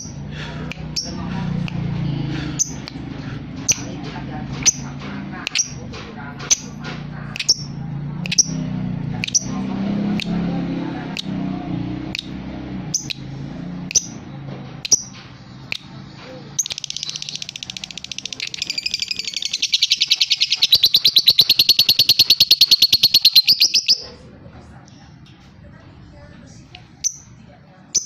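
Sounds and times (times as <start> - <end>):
lovebird chirping and trilling: 0.9 - 1.2, 2.6 - 3.0, 6.5 - 8.6, 9.2 - 9.6, 12.1 - 13.3, 13.9 - 14.2, 14.8 - 24.2, 27.0 - 27.3.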